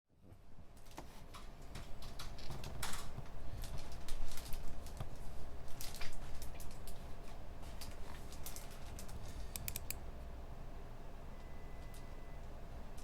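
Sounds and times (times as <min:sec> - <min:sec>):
low room hum: 0:00.1 - 0:13.0
computer keyboard typing: 0:08.4 - 0:10.0.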